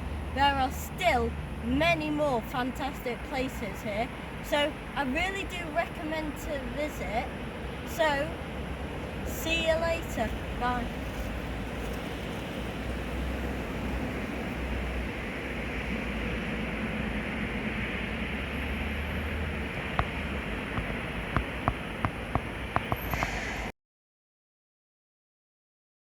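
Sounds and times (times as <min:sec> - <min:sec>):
steady rushing noise: 0:07.2 - 0:23.7.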